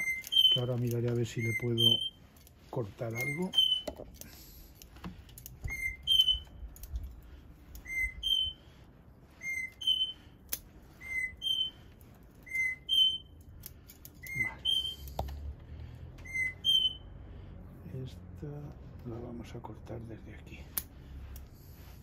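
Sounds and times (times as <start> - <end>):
scissors snipping roots: 20.8 - 21.4.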